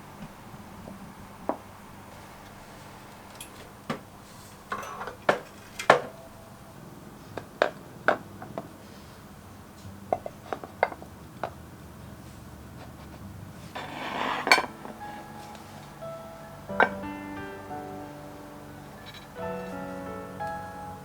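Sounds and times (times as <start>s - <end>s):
dishes clinking: 13.8s - 15.0s.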